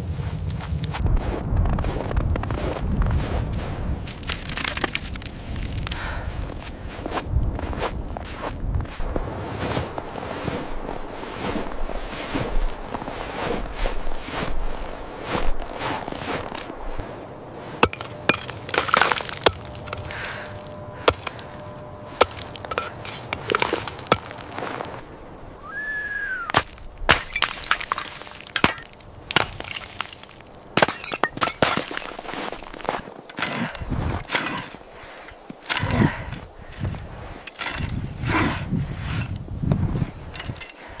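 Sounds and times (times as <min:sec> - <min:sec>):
sharp cracks and knocks: 0:04.1 - 0:06.0.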